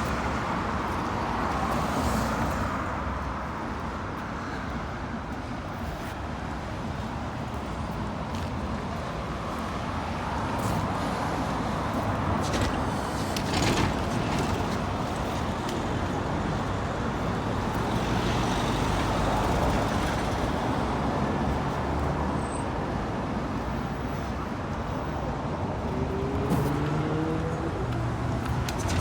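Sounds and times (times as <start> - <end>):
road traffic passing: 0.0 - 29.0.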